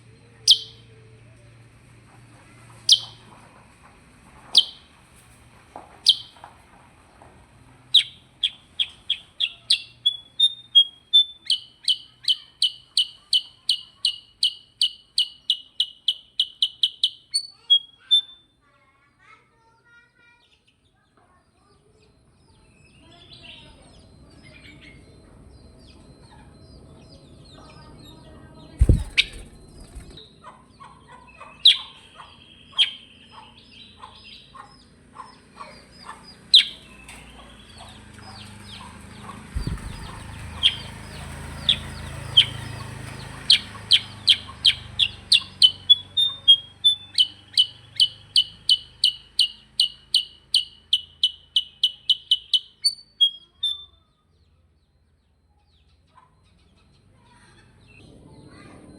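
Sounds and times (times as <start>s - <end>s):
bird chirps and whistles: 0.5s - 0.8s, 2.9s - 3.2s, 6.1s - 6.3s, 28.8s - 30.2s, 44.0s - 54.0s
bird fast sharp repeated notes: 28.8s - 30.2s, 39.6s - 40.8s
brief thump: 28.8s - 30.2s.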